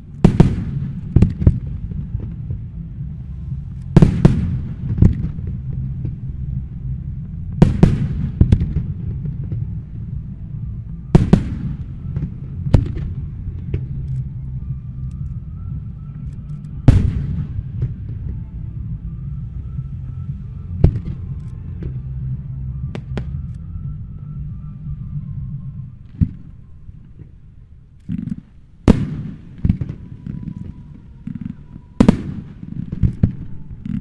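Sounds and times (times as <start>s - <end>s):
low rumble: 0.0s - 34.0s
fireworks bangs echoing: 0.2s - 2.7s, 3.9s - 6.2s, 7.5s - 9.8s, 11.1s - 14.1s, 16.9s - 18.4s, 28.1s - 34.0s.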